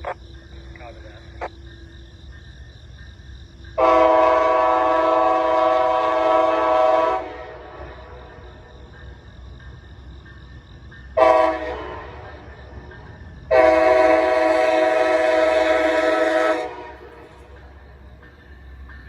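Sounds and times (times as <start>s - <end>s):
locomotive air horn blast: 3.8s - 7.7s, 11.2s - 12.2s, 13.5s - 17.1s.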